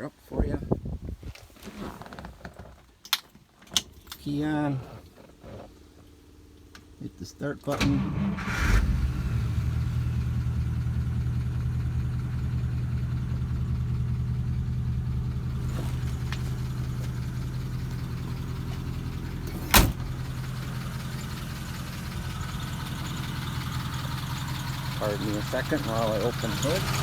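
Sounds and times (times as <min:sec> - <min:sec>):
car engine idling: 0:07.9 - 0:27.0.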